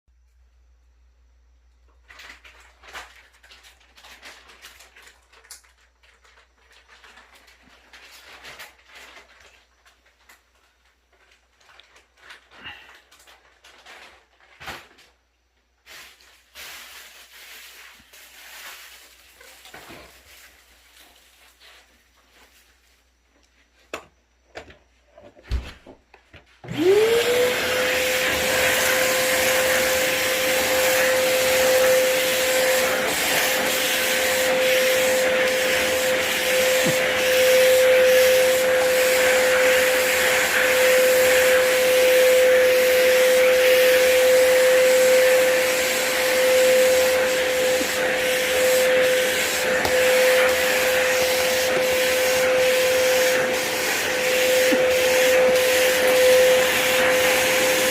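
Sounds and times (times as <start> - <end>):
vacuum cleaner running: 15.9 - 22.6, 26.6 - 57.9.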